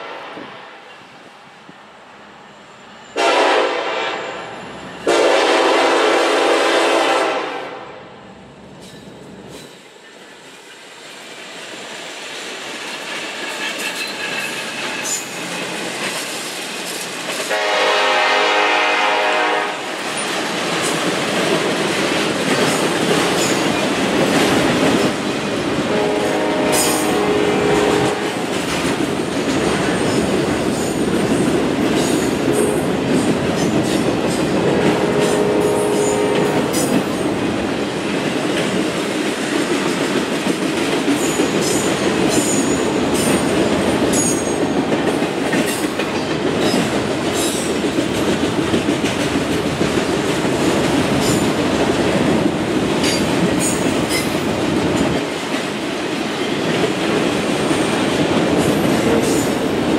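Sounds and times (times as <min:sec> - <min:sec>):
locomotive horn blasts: 0:03.2 - 0:08.0, 0:17.5 - 0:19.9, 0:25.9 - 0:28.4, 0:34.6 - 0:36.8
train wheels clacking over rail joints: 0:12.0 - 0:59.9.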